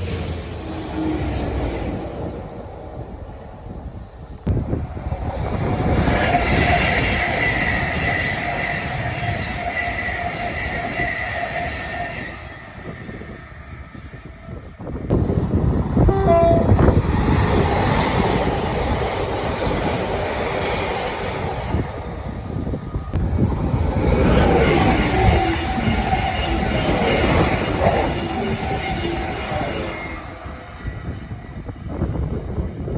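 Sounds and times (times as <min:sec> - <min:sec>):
train rumbling past: 0:00.0 - 0:32.9
steady squealing tones: 0:24.3 - 0:32.4.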